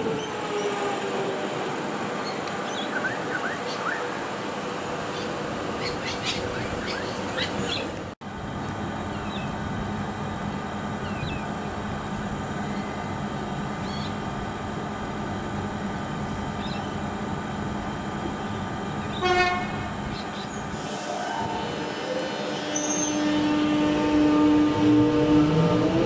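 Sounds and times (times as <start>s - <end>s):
short horn toot: 21.1s - 25.9s.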